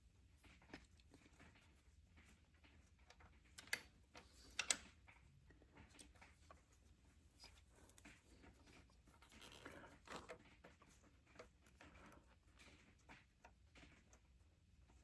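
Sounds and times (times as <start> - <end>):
clicks and rubs of hand work on metal: 5.8 - 14.2.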